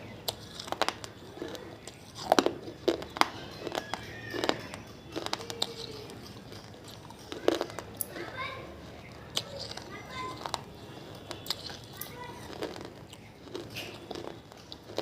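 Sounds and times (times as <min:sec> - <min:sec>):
clay lamps cracking and crunching: 0:00.0 - 0:15.0.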